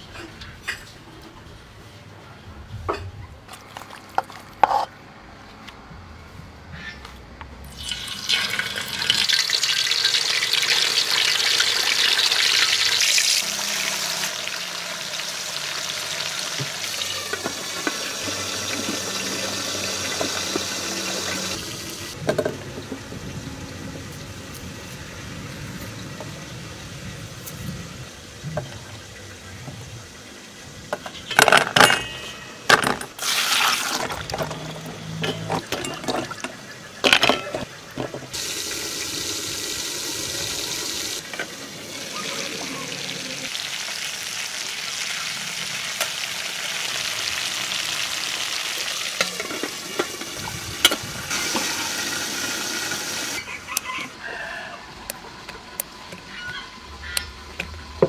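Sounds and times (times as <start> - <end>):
chicken sizzling in hot oil: 7.7 - 22.2, 38.3 - 54.7
kitchen handling sounds: 33.9 - 38.3.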